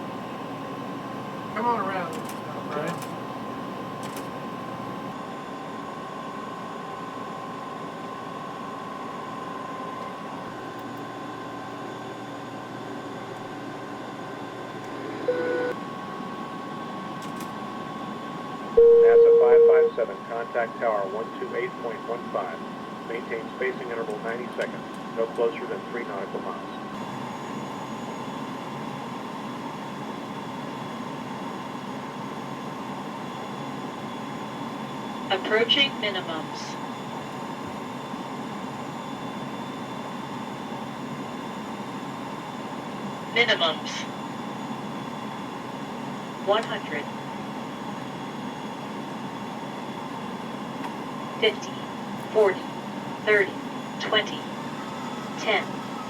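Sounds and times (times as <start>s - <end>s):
airflow and engine hum: 0.0s - 56.0s
faint steady whine: 0.0s - 56.0s
short beep: 18.8s - 20.0s.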